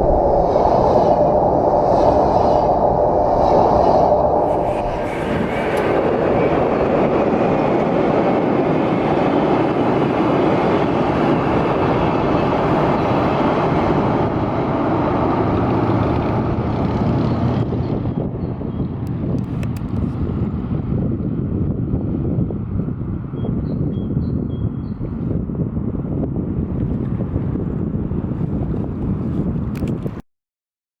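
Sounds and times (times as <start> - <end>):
train running past: 0.0 - 18.4.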